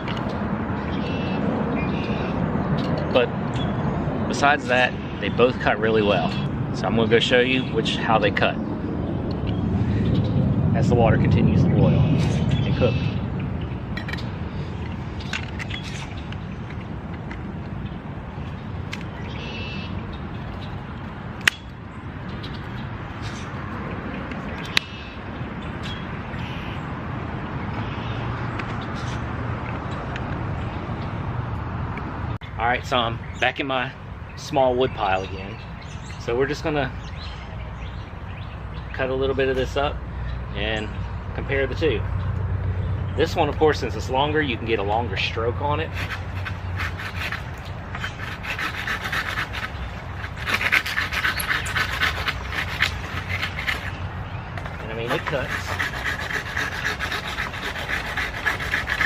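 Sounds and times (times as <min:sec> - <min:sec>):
hand saw cutting wood: 0:45.1 - 0:54.0, 0:54.6 - 0:59.0.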